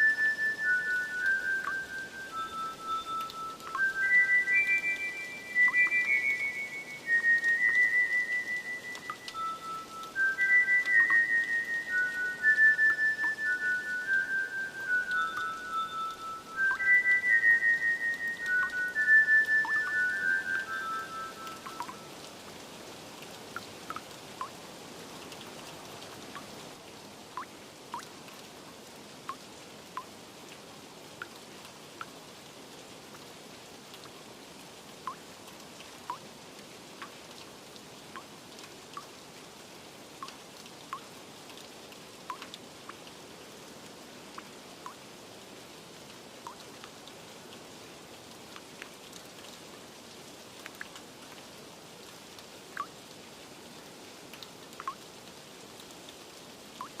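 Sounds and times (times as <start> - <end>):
water drops plinking: 0.0 - 22.3, 23.6 - 24.6, 54.4 - 55.0
steady rain: 0.0 - 57.0.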